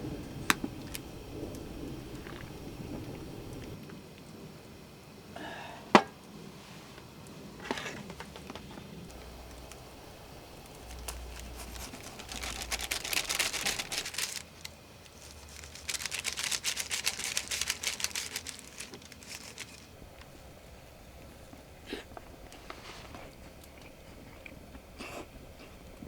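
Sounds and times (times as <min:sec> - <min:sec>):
dense rapid crackling: 0:10.6 - 0:20.0.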